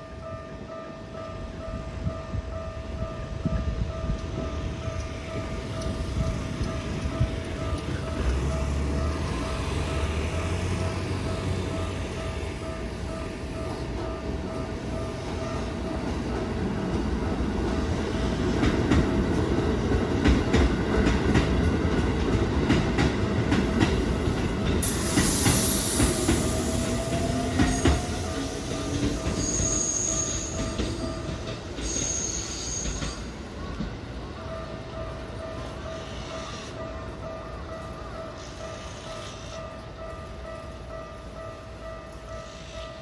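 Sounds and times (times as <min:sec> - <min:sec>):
crossing warning bell: 0:00.0 - 0:43.0
train wheels clicking on rail joints: 0:03.4 - 0:43.0
high wheel squeal: 0:24.8 - 0:33.3.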